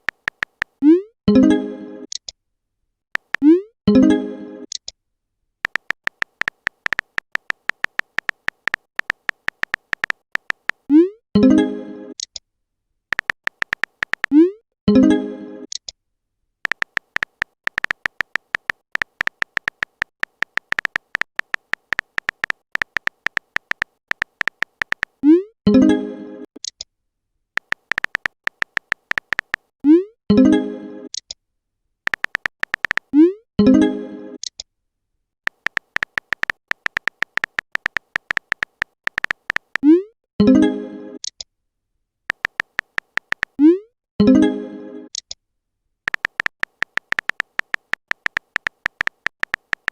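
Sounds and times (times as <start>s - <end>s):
typing beep-clicks: 0.0s - 1.0s, 5.6s - 11.1s, 13.1s - 14.5s, 16.7s - 25.8s, 27.6s - 29.6s, 32.1s - 33.3s, 35.5s - 40.0s, 42.3s - 43.8s, 46.1s - 49.9s.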